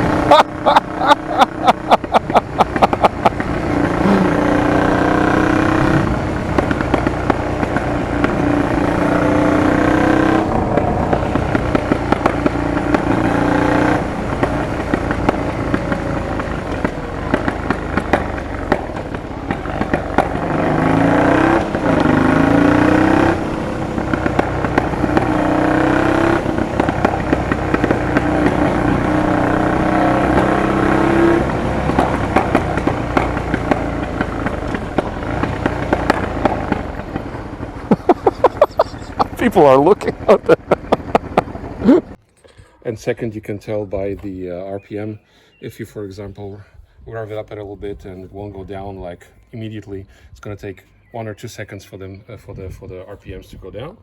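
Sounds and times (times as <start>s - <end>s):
motorcycle engine revving: 0.0s - 42.2s
exhaust pops and crackles: 0.0s - 44.6s.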